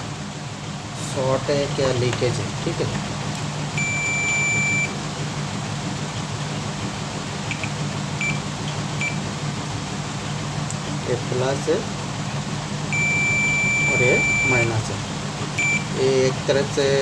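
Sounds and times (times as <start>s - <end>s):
steady low hum: 0.0s - 17.0s
multimeter continuity beeps: 3.8s - 5.0s, 8.2s - 8.4s, 9.0s - 9.2s, 12.9s - 14.8s, 15.6s - 15.9s.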